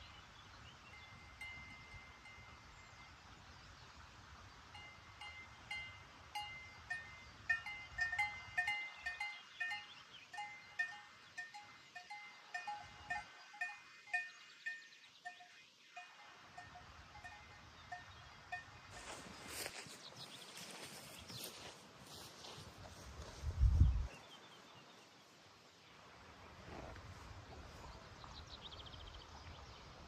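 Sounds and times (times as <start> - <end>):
livestock bells clanking: 0.9 - 3.1, 4.8 - 19.3.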